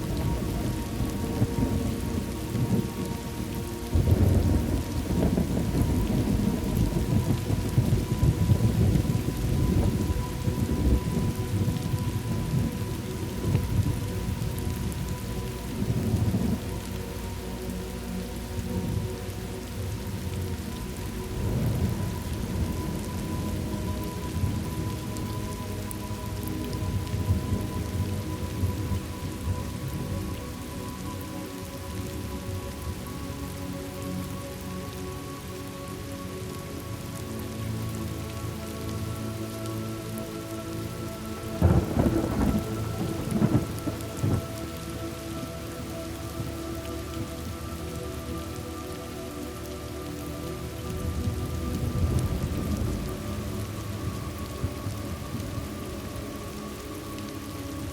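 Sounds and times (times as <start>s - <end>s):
thunder rumbling: 0.0s - 17.2s, 19.8s - 30.2s, 41.6s - 44.6s, 50.9s - 56.5s
steady rain: 0.0s - 57.9s.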